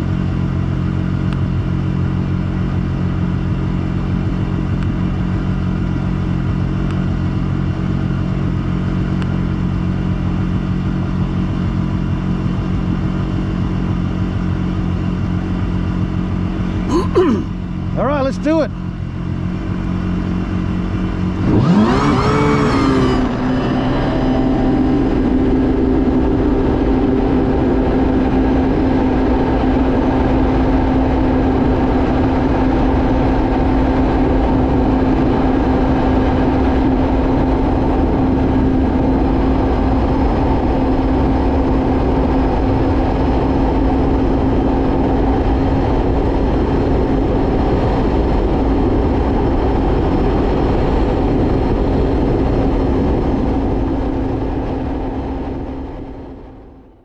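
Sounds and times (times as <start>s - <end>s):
jet ski engine revving: 19.5s - 28.5s.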